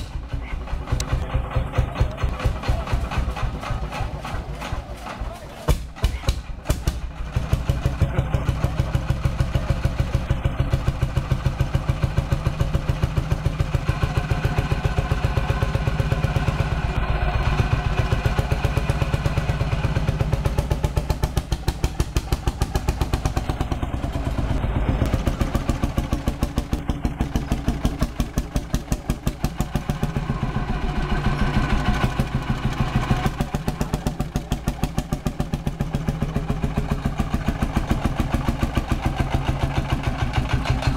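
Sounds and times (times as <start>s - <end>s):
diesel tractor engine idling: 0.0s - 40.9s.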